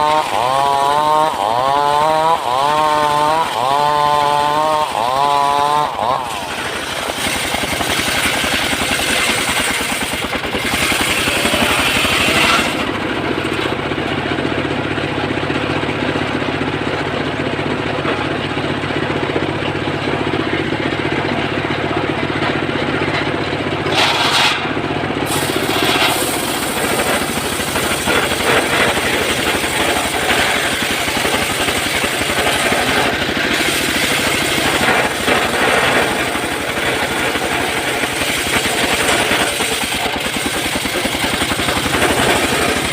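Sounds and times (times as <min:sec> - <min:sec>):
saw cutting wood: 0:00.0 - 0:14.7, 0:23.8 - 0:42.9
saw engine running: 0:00.0 - 0:42.9.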